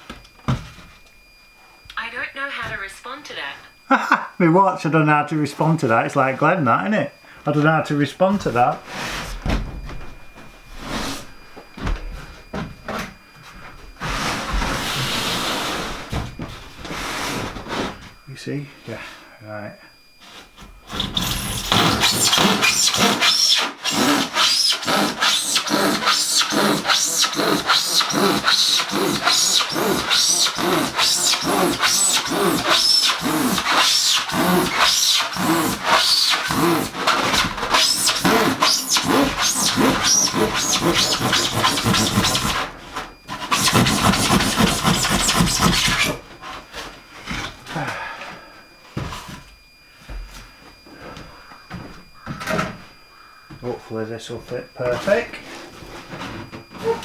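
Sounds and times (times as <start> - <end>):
handsaw cutting timber: 20.9 - 46.2.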